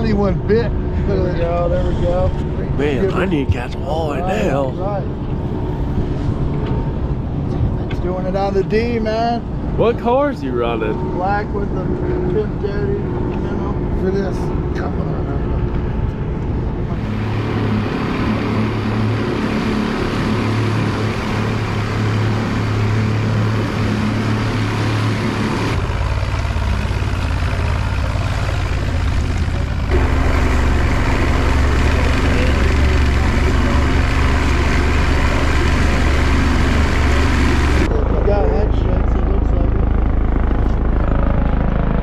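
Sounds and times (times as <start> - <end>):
wind: 0.0 - 42.0
boat engine running: 17.0 - 37.9.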